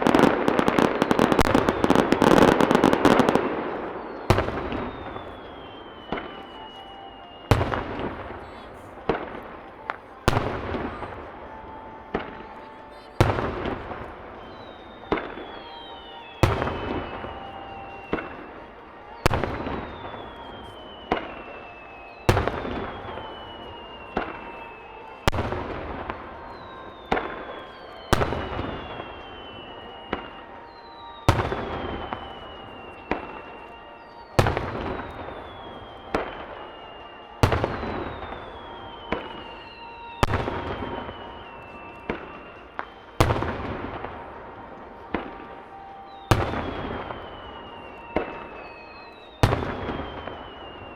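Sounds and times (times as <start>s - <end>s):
falling firework whistles: 0.0s - 50.9s.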